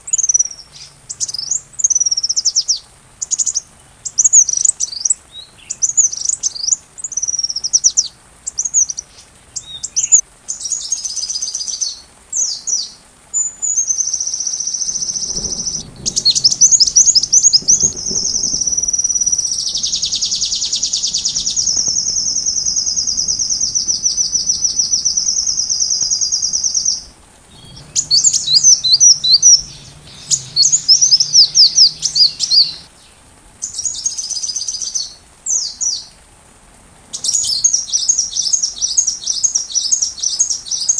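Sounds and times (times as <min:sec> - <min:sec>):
bird chirping and trilling: 0:00.1 - 0:10.2, 0:14.8 - 0:33.2.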